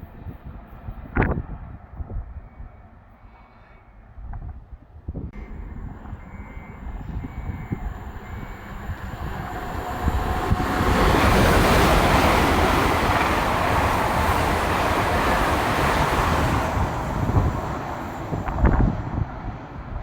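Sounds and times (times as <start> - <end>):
wind buffeting microphone: 0.0 - 3.0, 4.0 - 20.0
train rushing past: 5.4 - 20.0.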